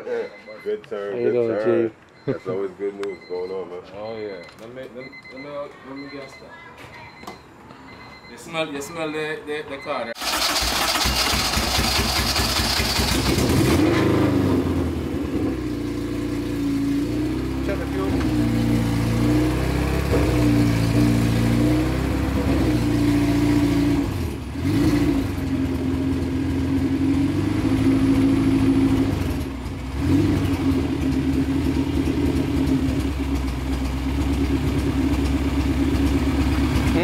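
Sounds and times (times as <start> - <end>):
car engine revving: 10.2 - 37.0.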